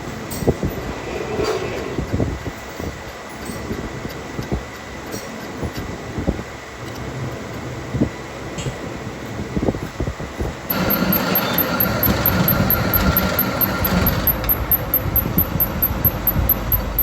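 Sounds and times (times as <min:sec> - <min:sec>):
steady whine: 0:00.0 - 0:17.0
machine running with knocks: 0:09.6 - 0:17.0.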